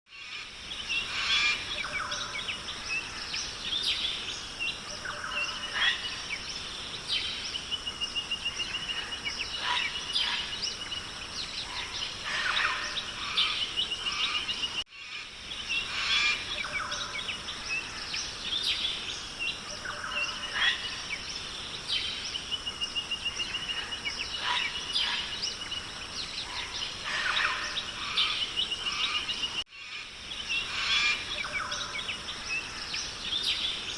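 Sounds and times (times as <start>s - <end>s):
high insect hum: 0.2s - 33.9s.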